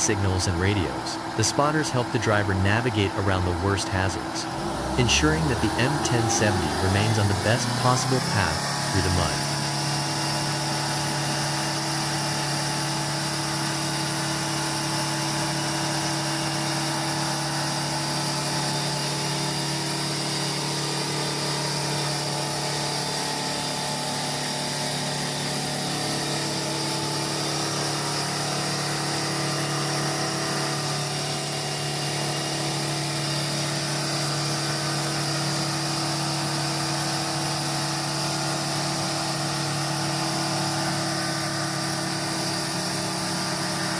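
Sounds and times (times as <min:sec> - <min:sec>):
truck diesel engine humming: 0:00.0 - 0:13.4.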